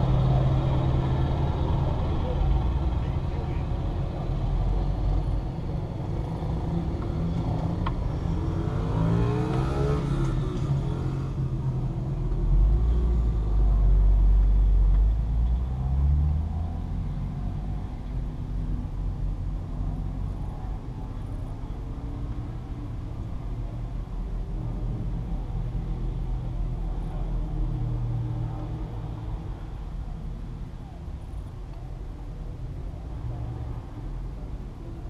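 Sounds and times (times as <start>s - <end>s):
deep engine rumble: 0.0s - 8.3s
car engines running: 0.0s - 35.0s.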